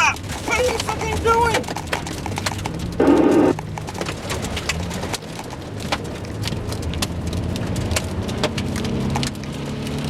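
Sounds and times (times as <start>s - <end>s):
hail and rain striking a car: 0.0s - 10.0s
vehicle low running hum: 1.6s - 8.7s.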